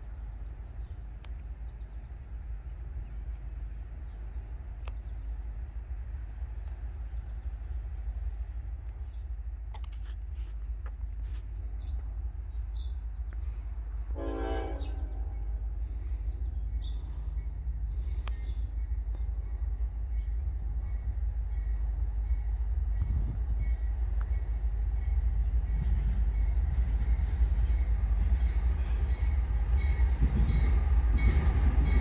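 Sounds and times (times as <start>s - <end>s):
freight train rumble: 0.0s - 32.0s
locomotive horn blast: 14.1s - 15.6s.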